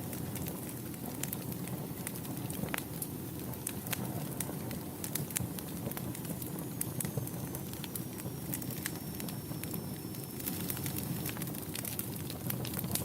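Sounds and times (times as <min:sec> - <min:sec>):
low rush of flames: 0:00.0 - 0:13.0
wood fire crackling and popping: 0:00.0 - 0:13.0
faint high whistle: 0:07.2 - 0:11.4.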